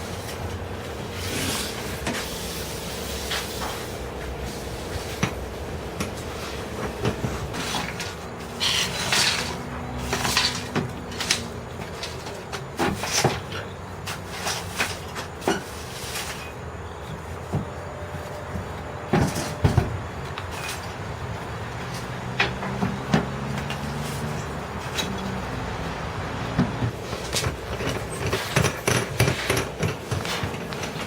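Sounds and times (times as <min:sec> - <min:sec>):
tools knocking and scraping: 0:06.0 - 0:25.4, 0:26.5 - 0:31.0.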